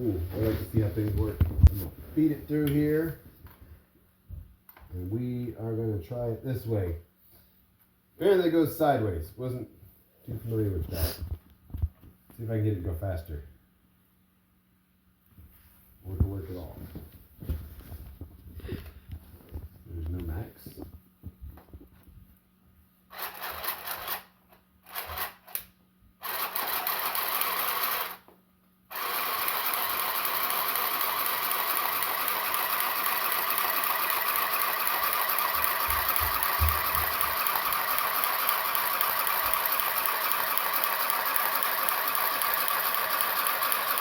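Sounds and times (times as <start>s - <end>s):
sewing machine stitching fabric: 23.1s - 28.3s, 28.9s - 44.0s.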